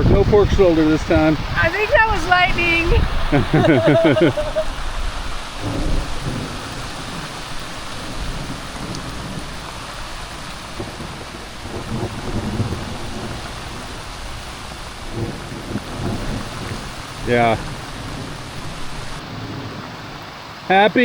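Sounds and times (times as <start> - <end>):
heavy rain hissing: 0.0 - 21.0
thunder rumbling: 0.0 - 21.0.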